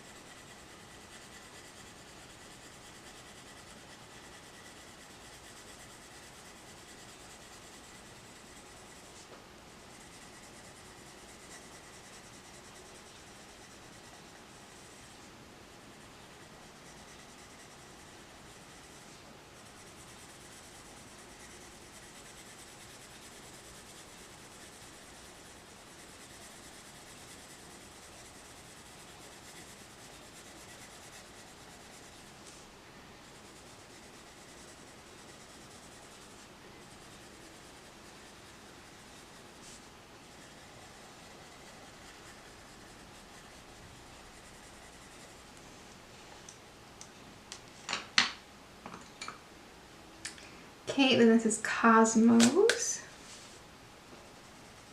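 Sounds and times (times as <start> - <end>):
coloured pencil scratching on paper: 0.0 - 45.5, 54.3 - 54.9.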